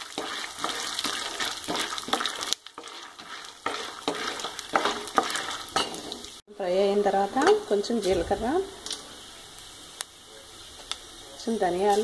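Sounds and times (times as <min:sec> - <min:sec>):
wooden spoon scraping a pan: 0:00.0 - 0:06.4
nuts sizzling in oil: 0:00.0 - 0:12.0.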